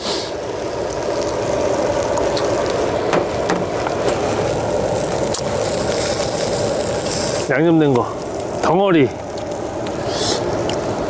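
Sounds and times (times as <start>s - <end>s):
fish sizzling on a grill: 0.0s - 11.0s.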